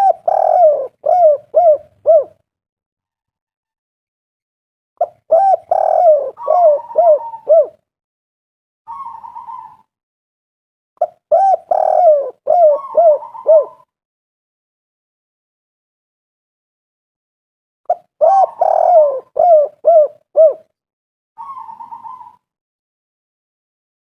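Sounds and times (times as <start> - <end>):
dove cooing: 0.0 - 2.4, 5.0 - 7.8, 8.9 - 9.9, 11.0 - 13.9, 17.9 - 20.7, 21.4 - 22.4.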